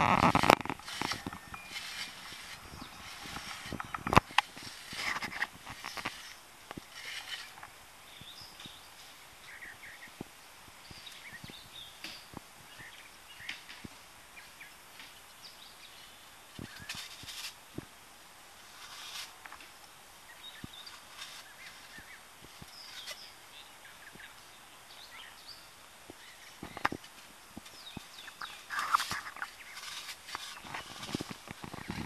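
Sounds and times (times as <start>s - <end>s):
hand tools scraping soil: 0.0s - 9.7s, 16.6s - 17.9s, 18.6s - 23.4s, 26.2s - 32.0s
birds chirping: 0.0s - 17.2s, 20.2s - 32.0s.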